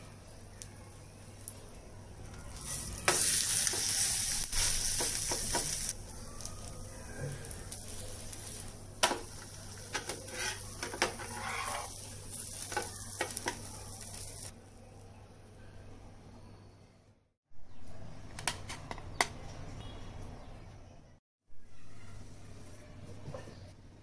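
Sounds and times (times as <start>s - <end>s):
batter sizzling on a pan: 0.1s - 14.6s
spatula tapping and scraping pan: 9.0s - 11.9s.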